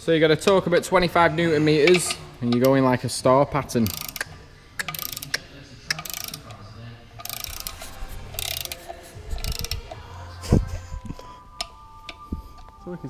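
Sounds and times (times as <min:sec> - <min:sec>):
ratcheting torque wrench clicking: 0:03.8 - 0:06.6, 0:07.2 - 0:10.1.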